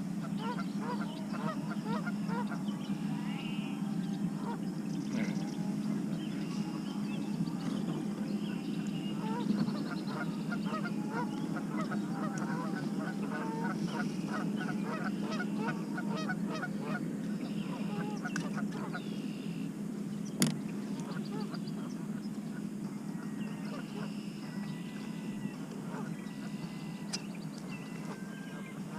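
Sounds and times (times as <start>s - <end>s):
geese honking: 0.0s - 19.7s, 20.9s - 28.9s
steady low hum: 0.0s - 28.9s.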